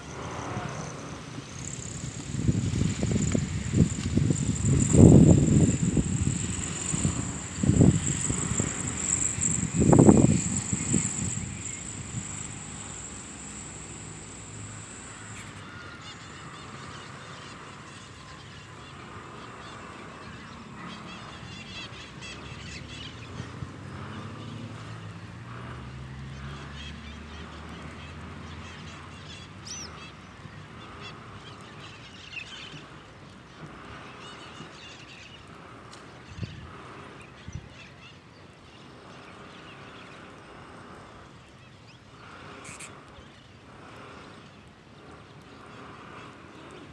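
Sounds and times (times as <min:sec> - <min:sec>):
low drone: 0:00.0 - 0:16.8
steady high whine: 0:00.0 - 0:17.0
birds calling and chirping: 0:01.2 - 0:17.2.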